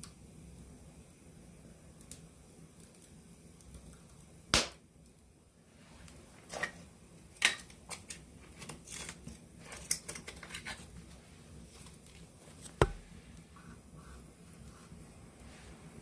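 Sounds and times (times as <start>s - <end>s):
campfire crackling and popping: 1.9s - 5.2s.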